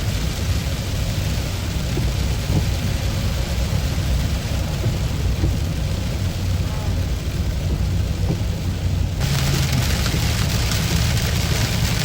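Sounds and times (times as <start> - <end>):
rain hissing on car: 0.0 - 12.0
tyre and engine rumble: 0.0 - 12.0.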